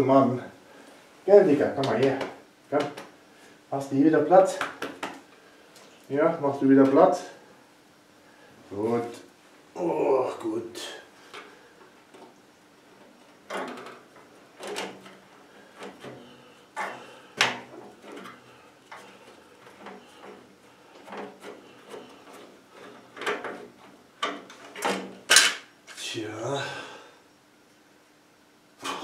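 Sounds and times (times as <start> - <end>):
metal parts clunking and scraping: 13.0 - 25.7.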